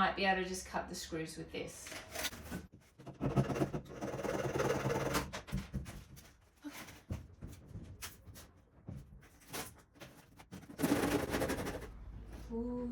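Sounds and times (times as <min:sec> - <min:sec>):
scrapes and knocks: 0:01.8 - 0:12.0
hacksaw sawing at a screw: 0:03.0 - 0:05.3.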